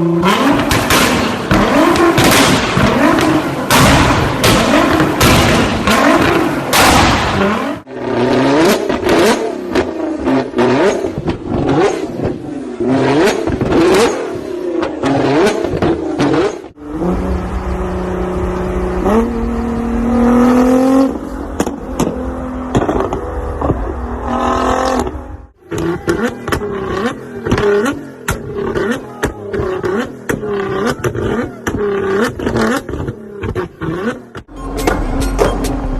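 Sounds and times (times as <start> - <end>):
engine revving: 0.0 - 35.9
exhaust crackling bangs: 0.6 - 7.6.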